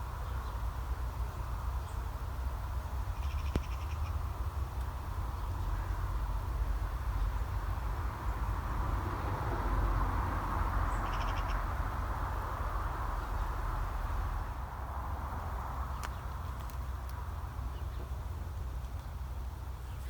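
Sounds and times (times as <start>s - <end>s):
steady low rumble: 0.0s - 20.0s
birds calling: 3.0s - 4.4s, 10.8s - 11.7s, 15.9s - 20.0s.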